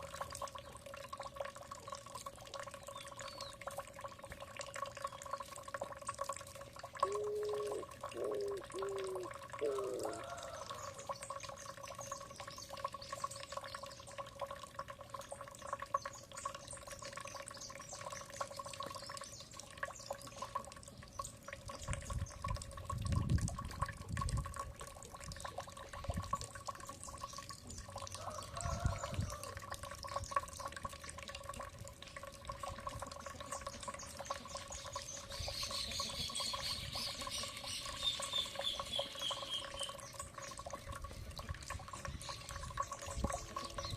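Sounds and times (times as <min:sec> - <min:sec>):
water trickling and dripping: 0:00.0 - 0:43.9
birds calling: 0:07.0 - 0:11.0.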